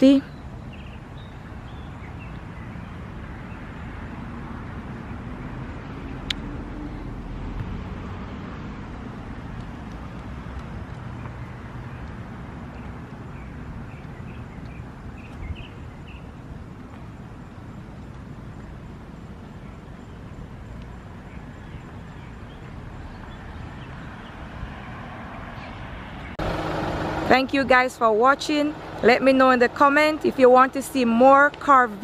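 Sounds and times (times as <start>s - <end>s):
birds chirping: 0.0s - 4.3s, 9.6s - 32.0s
traffic noise: 0.0s - 32.0s.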